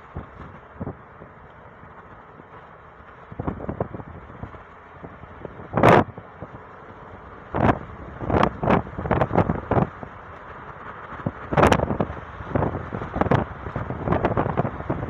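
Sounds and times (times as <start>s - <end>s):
car road noise: 0.0s - 15.0s
wind hits on microphone: 3.3s - 6.6s, 7.5s - 10.2s, 11.2s - 15.0s.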